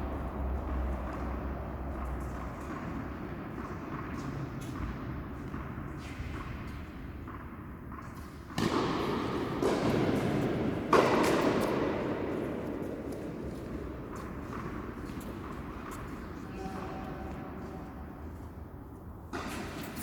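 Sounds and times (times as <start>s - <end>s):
tennis ball struck and bouncing: 0.2s - 16.2s.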